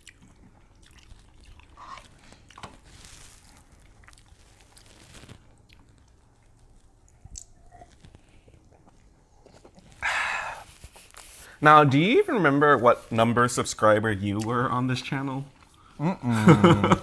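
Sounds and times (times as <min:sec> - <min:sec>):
close-up chewing: 0:00.0 - 0:11.3.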